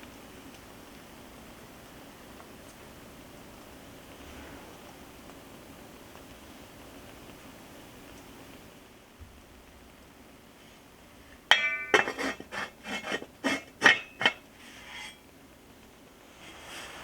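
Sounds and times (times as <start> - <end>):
dishes clinking: 11.5 - 15.2.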